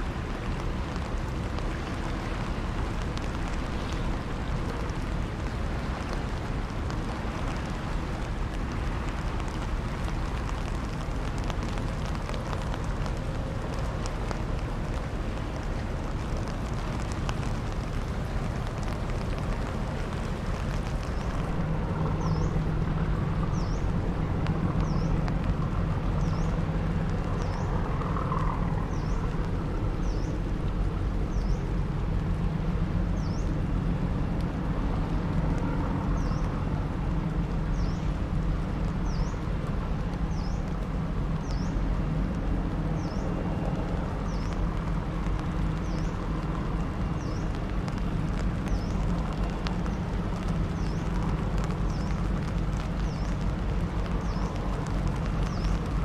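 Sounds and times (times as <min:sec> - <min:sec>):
boat engine droning: 0:00.0 - 0:41.3.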